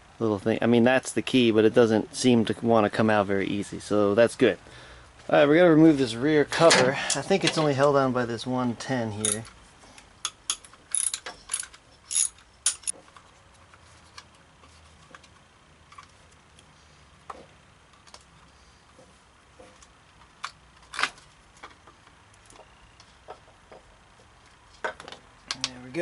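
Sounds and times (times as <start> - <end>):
metallic tool clicks and knocks: 9.2 - 9.5, 10.2 - 13.0
ratchet wrench clicking: 10.2 - 12.9.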